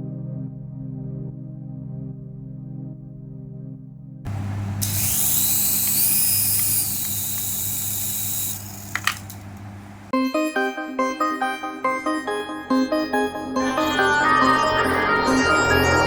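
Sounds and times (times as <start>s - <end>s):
soft ambient music: 0.0s - 4.2s
sharp clicks: 4.3s - 10.1s
small electric motor whirring: 4.3s - 10.1s.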